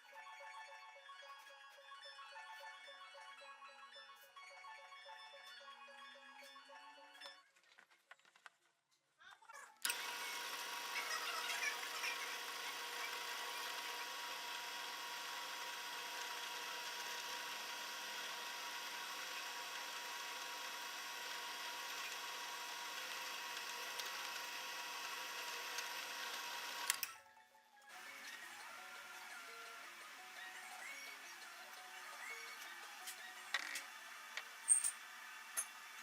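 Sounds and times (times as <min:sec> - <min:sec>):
power tool whining: 0:09.8 - 0:27.1.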